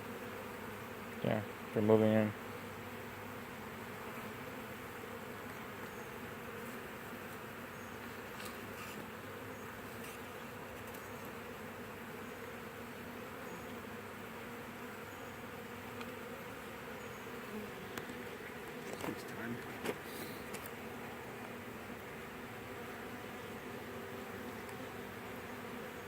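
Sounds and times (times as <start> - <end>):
honey bees buzzing: 0.0 - 26.0.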